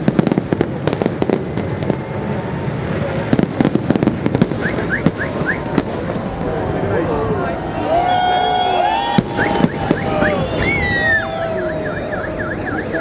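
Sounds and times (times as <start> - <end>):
crackling rumble: 0.0 - 7.6
fireworks cracks and bangs: 0.0 - 7.8, 8.8 - 13.0.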